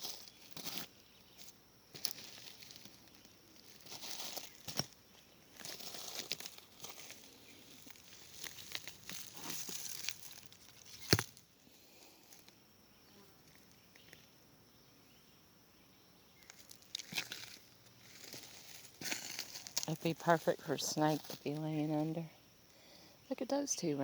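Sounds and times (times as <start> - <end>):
footsteps on dry leaves and stones: 0.0 - 11.5, 16.4 - 22.1
faint high-pitched hum: 0.0 - 24.0.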